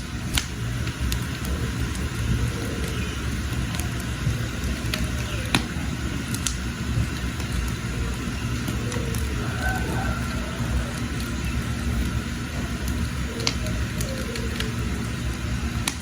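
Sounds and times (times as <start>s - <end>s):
fire crackling and popping: 0.0s - 16.0s
rush of flames: 0.0s - 16.0s.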